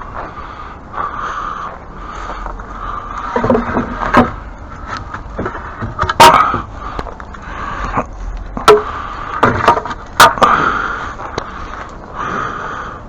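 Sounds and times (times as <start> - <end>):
hard objects knocking and clattering: 3.3 - 7.1, 8.6 - 10.5.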